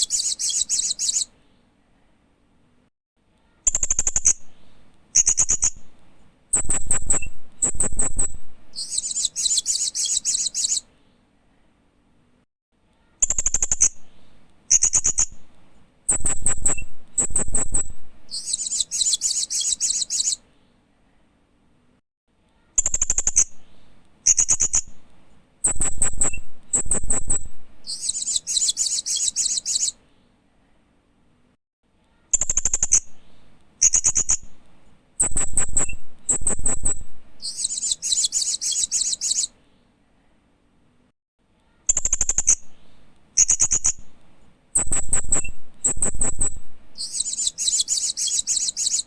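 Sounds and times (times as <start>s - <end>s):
parrot sharp high chirps: 0.0s - 1.3s, 6.6s - 10.9s, 16.1s - 20.4s, 25.6s - 30.0s, 35.2s - 39.6s, 44.8s - 49.0s.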